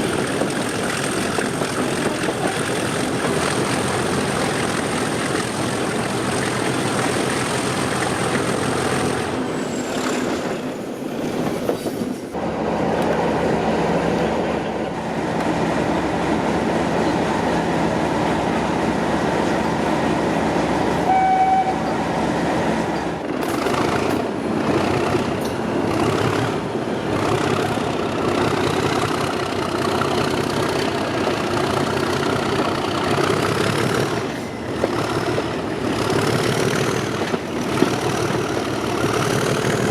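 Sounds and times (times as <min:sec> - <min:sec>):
diesel locomotive engine running hard: 0:00.0 - 0:39.9
train horn blast: 0:21.0 - 0:21.9.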